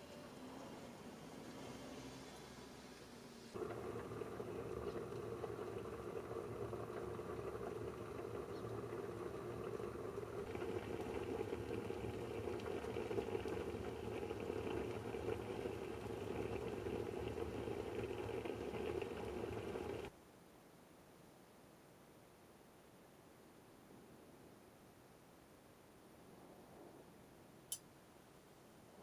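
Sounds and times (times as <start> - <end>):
water boiling: 3.5 - 20.1.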